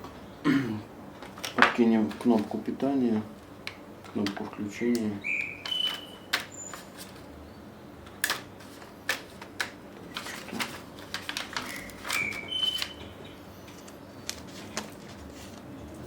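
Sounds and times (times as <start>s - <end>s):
plastic parts clicking and tapping: 1.2s - 7.3s, 8.0s - 12.9s.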